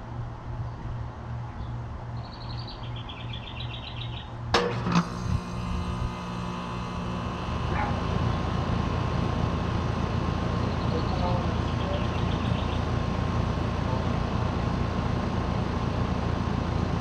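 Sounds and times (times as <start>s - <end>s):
air conditioner humming: 0.0s - 17.0s
bird chirping: 1.6s - 4.4s, 10.6s - 12.9s.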